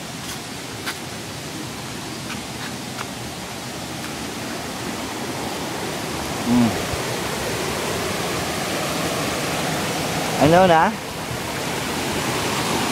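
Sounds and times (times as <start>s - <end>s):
rushing stream water: 0.0s - 12.9s
short low voice sound: 6.4s - 6.9s.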